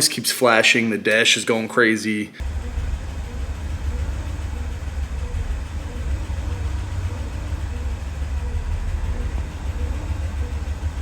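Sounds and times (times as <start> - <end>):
car engine idling: 2.4 - 11.0.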